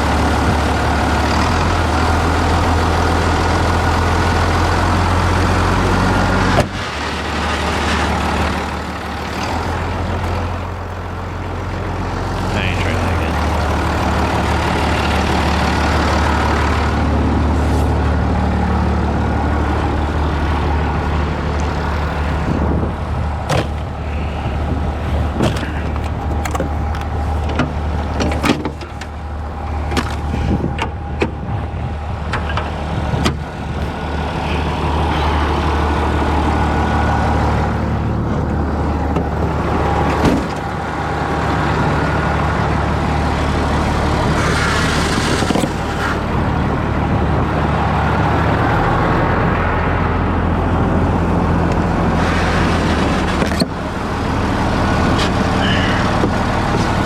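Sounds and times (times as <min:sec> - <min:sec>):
engine humming: 0:00.0 - 0:57.0
sharp clicks and knocks: 0:25.3 - 0:29.2.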